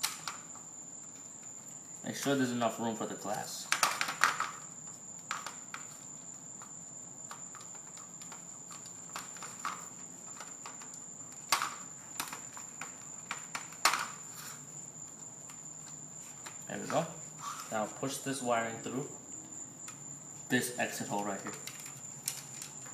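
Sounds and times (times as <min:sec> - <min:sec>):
steady high-pitched whine: 0:00.0 - 0:22.9.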